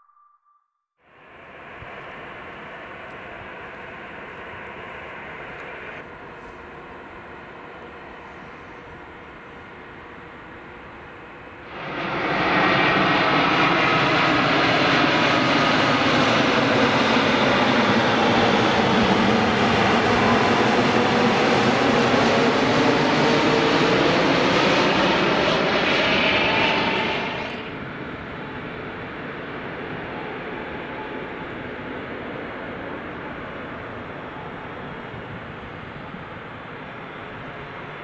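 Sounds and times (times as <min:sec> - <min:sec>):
jet engines of landing airliner: 0:01.1 - 0:38.0.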